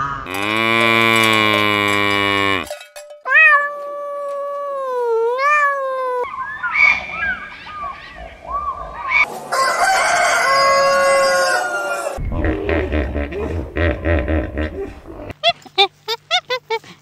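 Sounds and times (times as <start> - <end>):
rooster crowing: 9.5 - 12.2
deep rumbling: 12.2 - 15.3.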